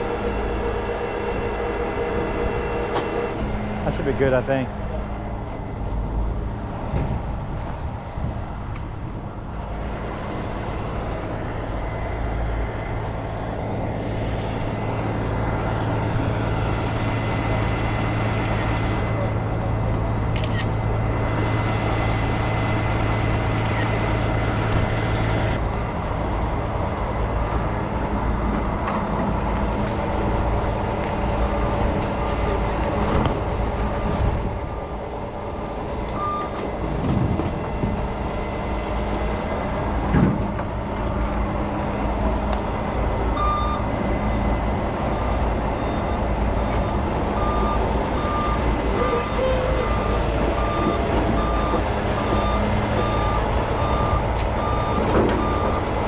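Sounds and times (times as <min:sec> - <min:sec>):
back-up alarm beeping: 0:00.0 - 0:04.4, 0:36.2 - 0:36.6, 0:43.3 - 0:55.9
heavy truck engine running: 0:00.0 - 0:56.0.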